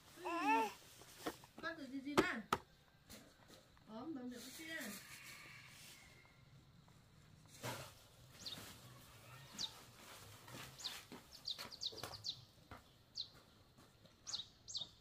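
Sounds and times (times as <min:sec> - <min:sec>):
bird chirping: 0:08.3 - 0:15.0.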